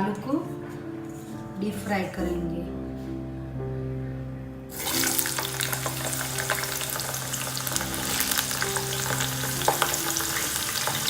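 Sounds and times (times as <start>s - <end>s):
quiet background music: 0.0s - 11.0s
potatoes sizzling in hot oil: 4.7s - 11.0s.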